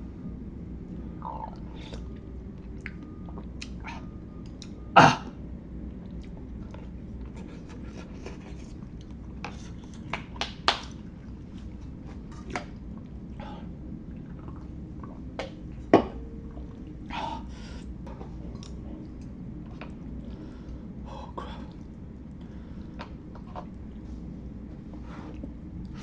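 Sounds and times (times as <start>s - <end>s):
chewing and slurping: 14.0s - 15.8s.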